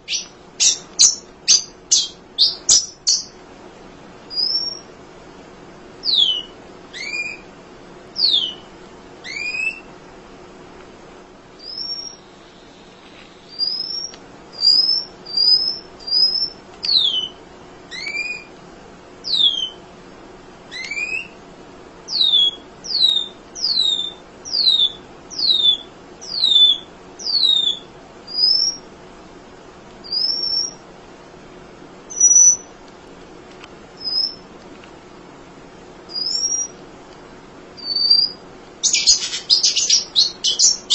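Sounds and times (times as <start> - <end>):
bird high chirps: 0.0 - 3.4, 4.3 - 4.9, 6.0 - 7.5, 8.2 - 9.9, 11.6 - 12.3, 13.5 - 18.5, 19.2 - 19.8, 22.1 - 28.8, 30.0 - 30.8, 32.1 - 32.7, 34.0 - 34.4, 36.1 - 36.8, 37.8 - 40.9.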